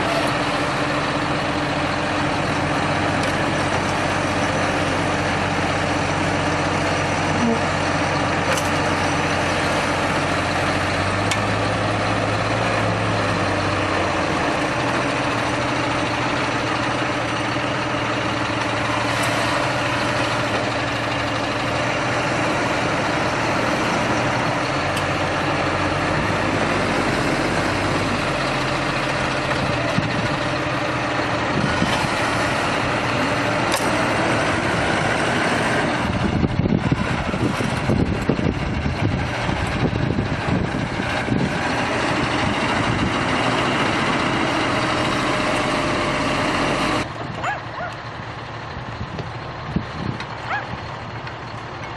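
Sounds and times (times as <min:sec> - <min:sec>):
heavy vehicle engine running: 0:00.0 - 0:51.9
gusty low rumble: 0:19.8 - 0:45.8, 0:46.9 - 0:51.2.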